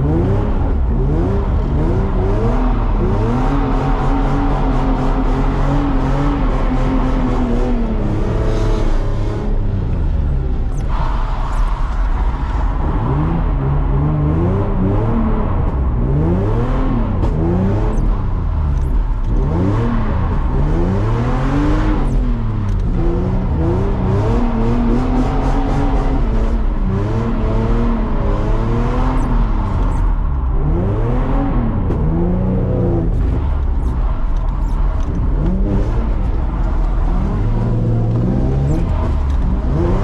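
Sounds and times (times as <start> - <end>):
car engine revving hard: 0.0 - 9.9, 18.8 - 34.0, 34.6 - 40.0.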